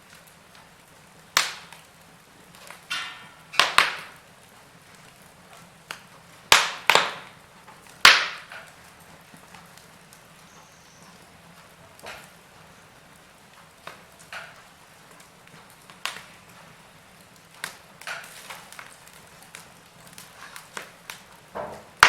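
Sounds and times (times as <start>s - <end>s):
faint steady hiss: 0.0s - 22.0s
wood fire crackling: 0.0s - 22.0s
sharp loud pops: 6.5s - 7.3s, 8.1s - 8.6s.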